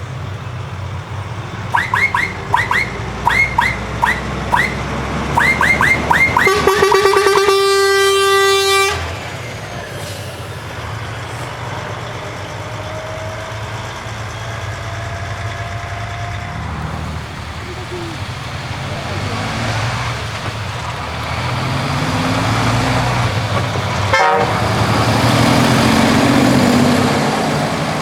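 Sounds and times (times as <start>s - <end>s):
truck engine running: 0.0s - 28.0s
truck horn toots: 1.6s - 9.4s, 16.6s - 25.4s.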